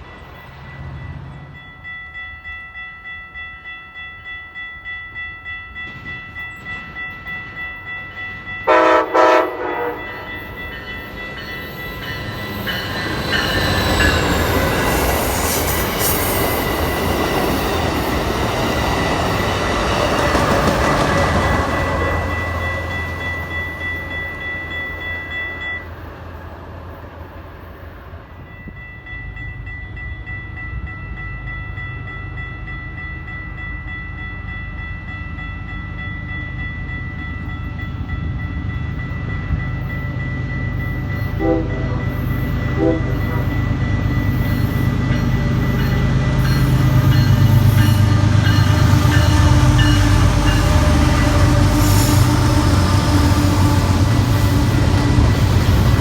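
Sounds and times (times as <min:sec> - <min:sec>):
train rumbling: 0:00.0 - 0:56.0
train horn: 0:08.7 - 0:10.6, 0:41.3 - 0:43.8, 0:46.9 - 0:55.4.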